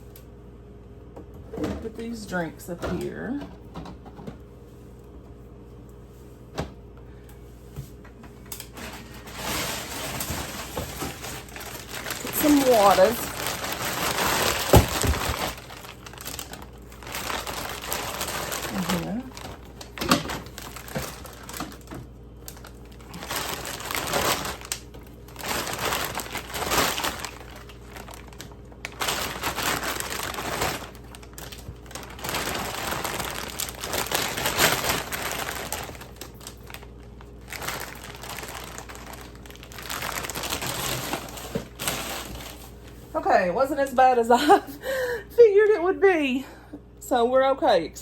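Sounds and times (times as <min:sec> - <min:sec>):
plastic packaging crinkling: 0:08.4 - 0:43.0.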